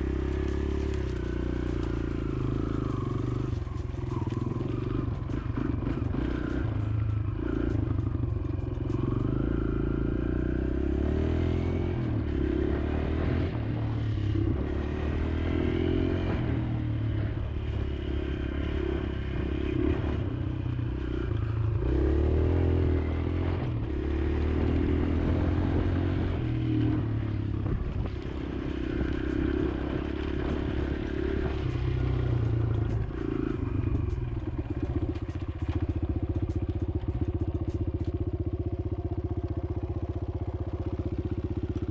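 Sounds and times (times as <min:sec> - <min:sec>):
dirt bike engine revving: 0:00.0 - 0:16.4, 0:28.2 - 0:38.1.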